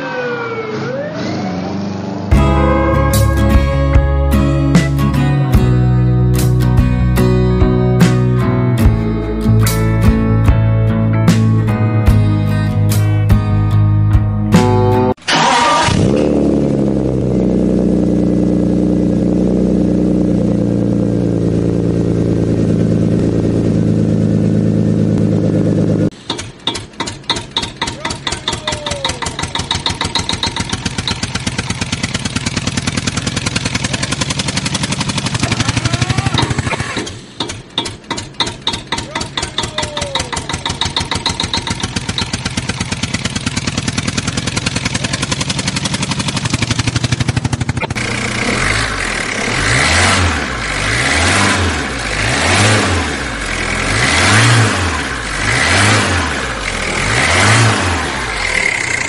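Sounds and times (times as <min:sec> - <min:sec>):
engine revving: 0:00.0 - 0:11.6, 0:14.5 - 0:26.2, 0:27.8 - 0:37.6, 0:40.2 - 0:59.0
vehicle engine running: 0:00.0 - 0:13.7, 0:14.4 - 0:59.0.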